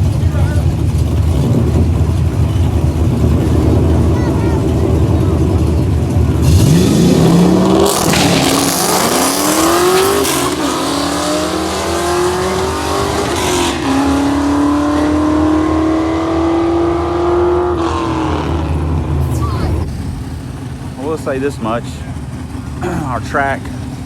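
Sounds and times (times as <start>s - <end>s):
drag car engine accelerating: 0.0s - 24.0s.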